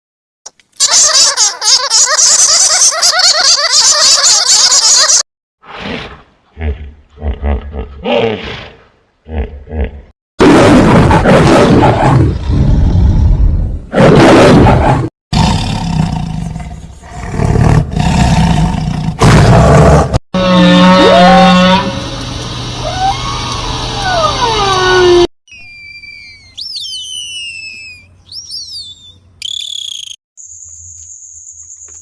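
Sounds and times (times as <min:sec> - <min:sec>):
large animal roaring: 0:05.7 - 0:21.9
high gliding whistling calls: 0:25.5 - 0:32.0.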